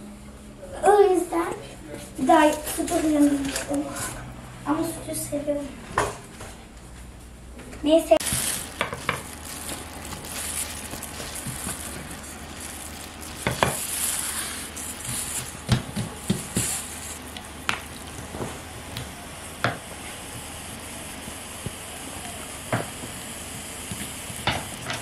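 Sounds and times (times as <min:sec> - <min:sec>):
food sizzling in a frying pan: 0:08.2 - 0:25.0.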